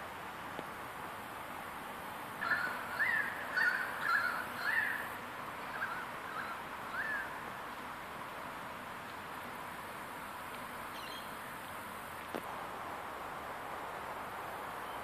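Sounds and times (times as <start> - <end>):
steady background hiss: 0.0 - 15.0
bird chirping: 10.9 - 11.4.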